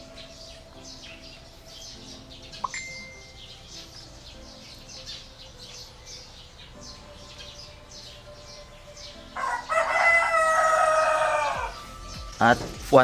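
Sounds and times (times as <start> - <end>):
small bird chirping: 0.0 - 13.0
rooster crowing: 9.2 - 12.1.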